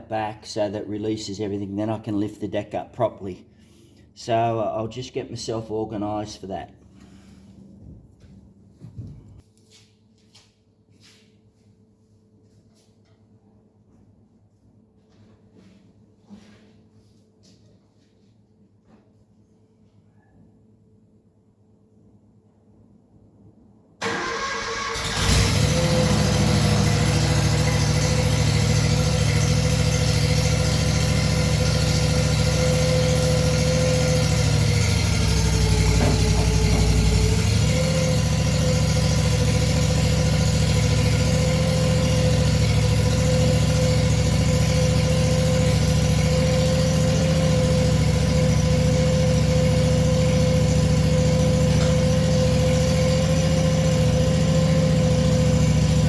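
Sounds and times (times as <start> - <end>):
tractor engine running: 24.0 - 56.0.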